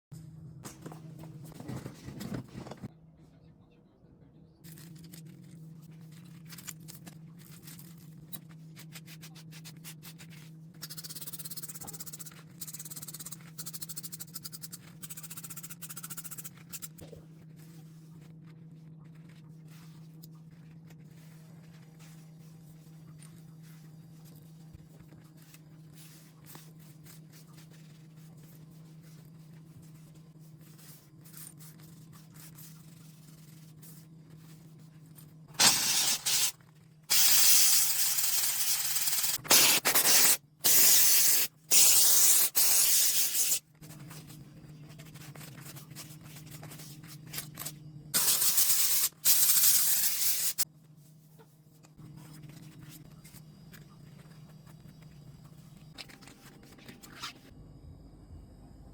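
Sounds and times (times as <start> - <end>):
steady low hum: 0.2 - 40.7, 42.4 - 58.9
cleaning spray hissing: 35.6 - 36.5, 37.1 - 43.6, 48.2 - 50.6.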